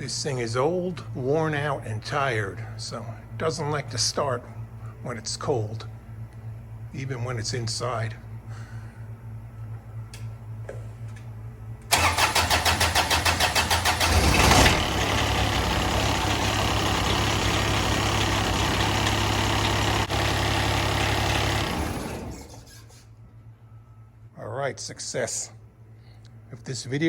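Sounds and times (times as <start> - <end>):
diesel engine running: 11.8 - 23.0
diesel engine starter cranking: 11.9 - 23.0.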